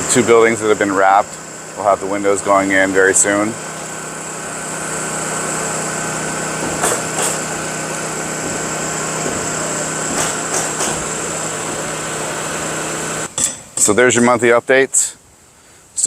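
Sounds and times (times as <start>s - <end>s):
small engine running: 0.0s - 13.3s
short sharp knocks: 6.6s - 7.5s, 10.1s - 11.1s.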